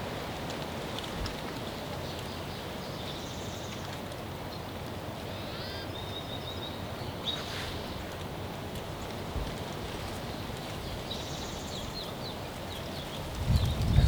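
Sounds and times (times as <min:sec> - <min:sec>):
steady outdoor hiss: 0:00.0 - 0:14.0
wild birds calling: 0:05.2 - 0:08.2.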